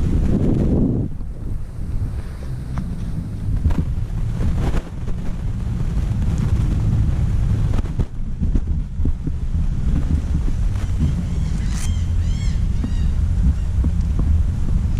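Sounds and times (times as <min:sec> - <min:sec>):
dirt bike engine rumbling: 0:00.0 - 0:14.9
wind buffeting microphone: 0:00.0 - 0:14.9.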